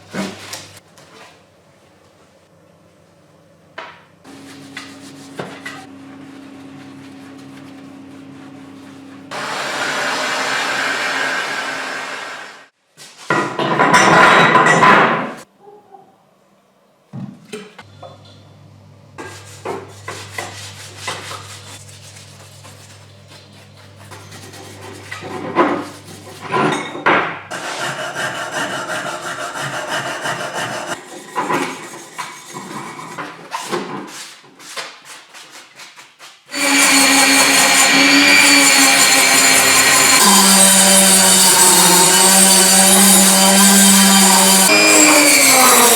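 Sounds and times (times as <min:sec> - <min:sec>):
power tool running: 0:09.3 - 0:12.7, 0:36.5 - 0:45.9.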